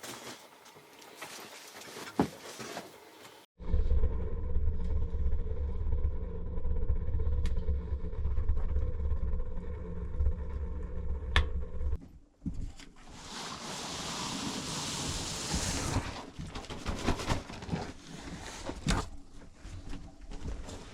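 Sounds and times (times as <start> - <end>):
wood stove fire rumbling: 3.6 - 12.0.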